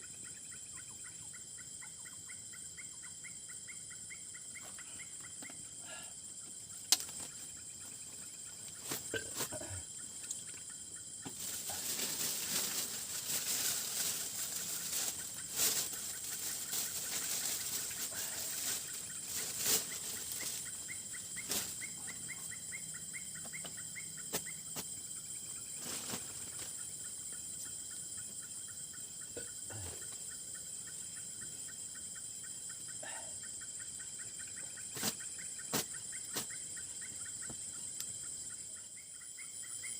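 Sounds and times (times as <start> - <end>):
pulsing insect call: 0.0 - 39.9
close rustling: 11.3 - 20.8, 25.8 - 26.8.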